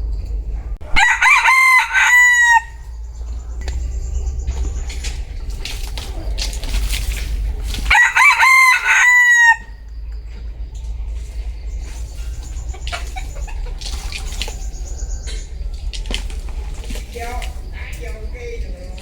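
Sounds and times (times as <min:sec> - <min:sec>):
rooster crowing: 0:00.8 - 0:04.8, 0:07.5 - 0:10.0, 0:11.3 - 0:16.9.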